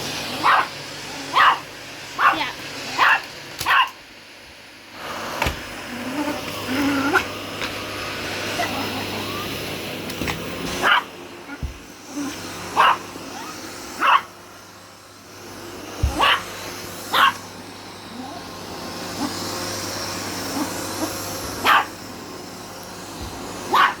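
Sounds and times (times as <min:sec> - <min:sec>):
vacuum cleaner motor humming: 0:00.0 - 0:24.0
small dog barking: 0:00.3 - 0:00.7, 0:01.3 - 0:04.0, 0:10.8 - 0:11.6, 0:12.7 - 0:14.4, 0:16.1 - 0:17.4, 0:20.6 - 0:21.9, 0:23.7 - 0:24.0.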